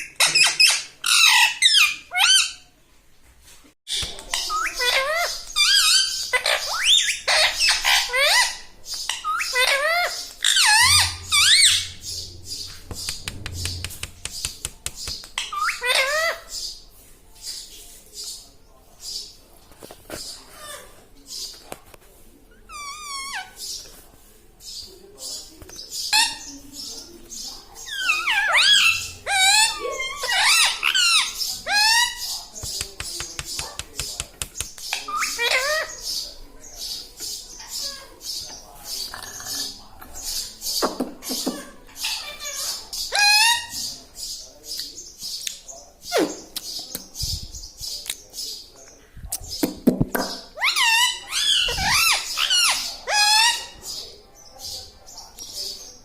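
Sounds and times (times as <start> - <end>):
parrot squeaky calls: 0.0 - 2.6, 3.9 - 13.9, 15.4 - 16.6, 22.6 - 23.6, 27.8 - 32.3, 34.9 - 36.0, 41.9 - 43.9, 50.5 - 53.8.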